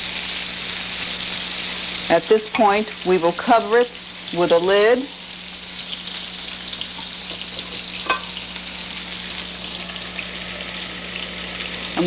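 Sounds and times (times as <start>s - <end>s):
vegetables sizzling in oil: 0.0s - 12.0s
metallic clink: 8.0s - 8.4s.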